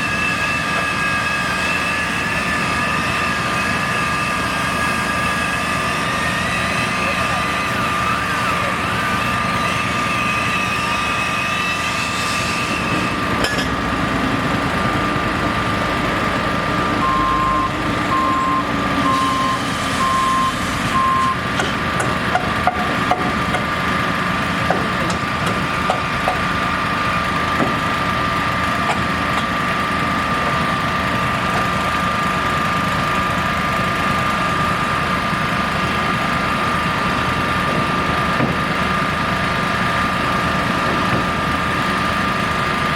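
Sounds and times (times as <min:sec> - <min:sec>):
heavy engine running: 0:00.0 - 0:42.9
steady high tone: 0:14.7 - 0:21.4
backup alarm beeping: 0:16.8 - 0:21.4
sharp knocks: 0:37.7 - 0:38.9.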